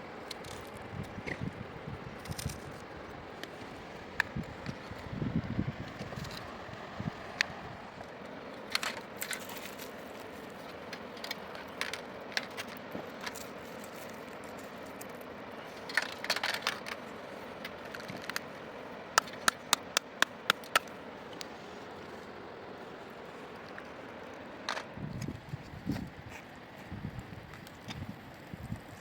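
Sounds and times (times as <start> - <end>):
sharp clicks and knocks: 19.2 - 20.9.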